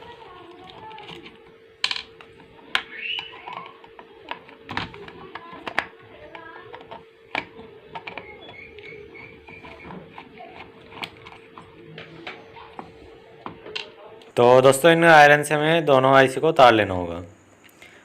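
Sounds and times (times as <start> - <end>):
faint steady hum: 0.0 - 18.0
metal tools clicking and knocking: 0.7 - 14.0.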